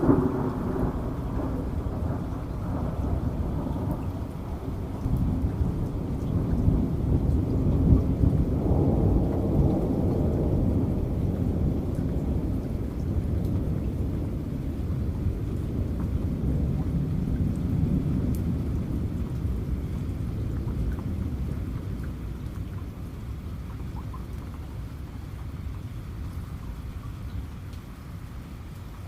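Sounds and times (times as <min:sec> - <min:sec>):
rolling thunder: 0:00.0 - 0:22.7
rain with dripping drops: 0:00.0 - 0:29.0.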